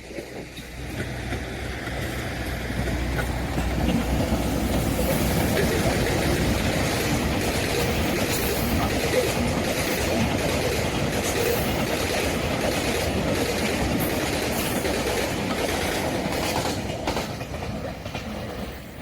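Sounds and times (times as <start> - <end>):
train passing on rails: 0.0 - 19.0
wheels clickety-clack on rail joints: 0.0 - 19.0.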